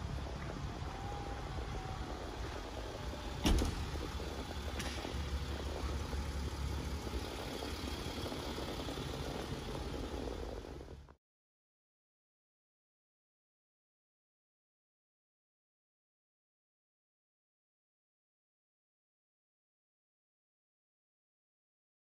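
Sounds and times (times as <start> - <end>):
car engine rumble: 0.0 - 11.2
sharp thump: 3.4 - 4.0.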